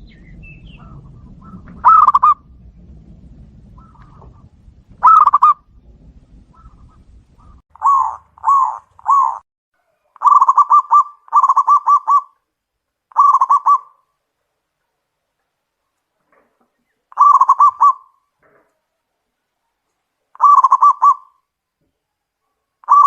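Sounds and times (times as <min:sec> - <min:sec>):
doves cooing: 0:00.0 - 0:09.4, 0:10.0 - 0:12.4, 0:13.1 - 0:14.0, 0:16.4 - 0:18.2, 0:20.4 - 0:21.4.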